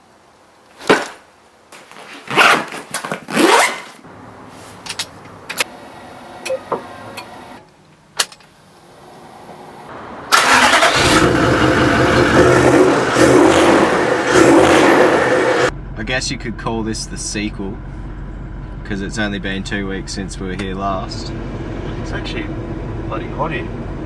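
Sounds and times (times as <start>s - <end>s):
vehicle engine starting and revving: 9.9s - 16.0s, 21.0s - 24.0s.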